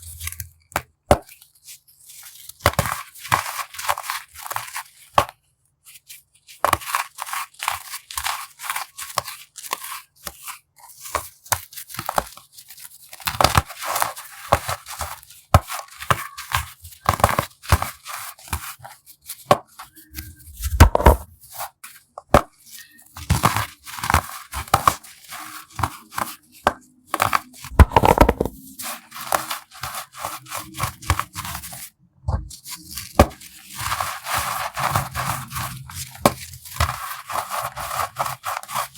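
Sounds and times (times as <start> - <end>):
baking soda crunching: 22.6 - 31.9, 32.6 - 38.9.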